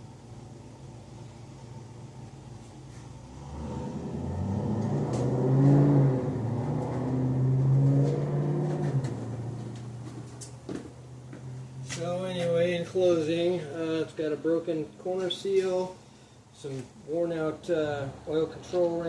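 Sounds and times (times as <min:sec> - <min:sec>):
vehicle engine running: 0:00.0 - 0:13.3.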